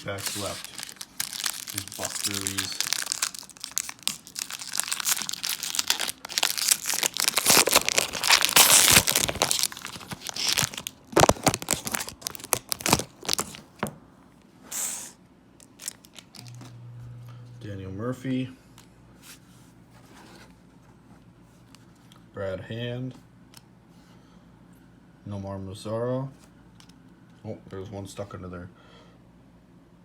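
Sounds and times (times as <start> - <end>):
foil wrapper crinkling: 0.0 - 13.8, 15.6 - 16.5.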